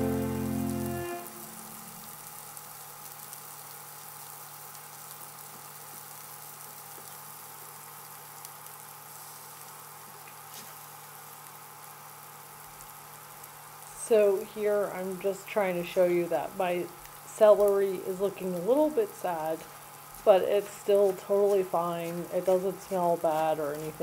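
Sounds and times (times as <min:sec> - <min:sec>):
onion sizzling in oil: 0:00.0 - 0:24.0.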